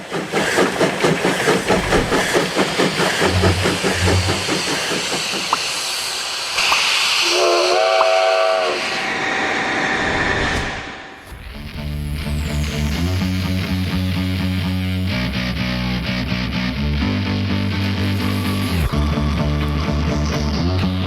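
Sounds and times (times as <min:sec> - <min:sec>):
train wheels clattering: 0:00.0 - 0:07.2
steady hiss: 0:01.2 - 0:09.6
train whistle blast: 0:03.2 - 0:10.1.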